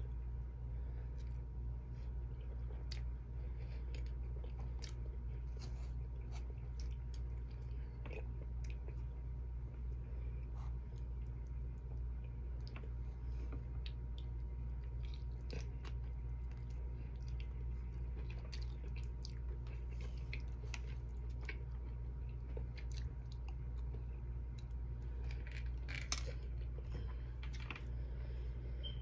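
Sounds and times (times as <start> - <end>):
steady low hum: 0.0 - 29.0
person chewing: 1.0 - 27.8.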